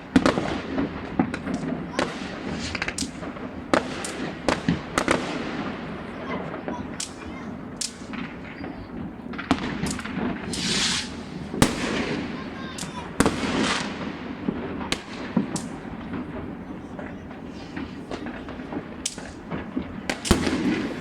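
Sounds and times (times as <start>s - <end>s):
fireworks banging and popping: 0.0s - 21.0s
hissing crackle: 0.6s - 5.9s, 6.6s - 21.0s.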